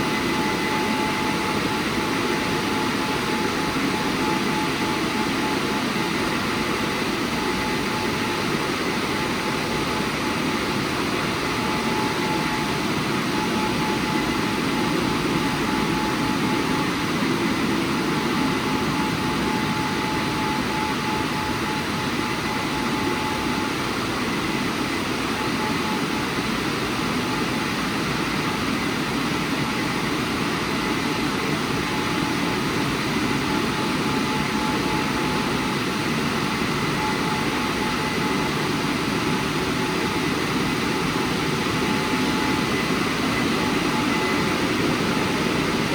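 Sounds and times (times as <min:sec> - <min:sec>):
car wash drying blowers: 0:00.0 - 0:45.9.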